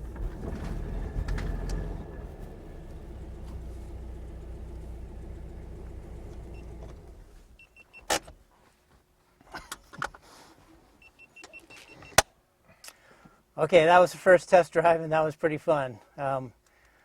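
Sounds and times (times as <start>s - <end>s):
car engine running: 0.0s - 7.5s.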